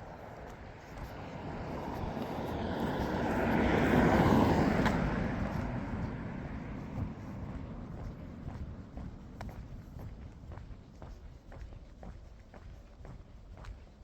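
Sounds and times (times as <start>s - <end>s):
vehicle passing by: 0.2s - 8.8s.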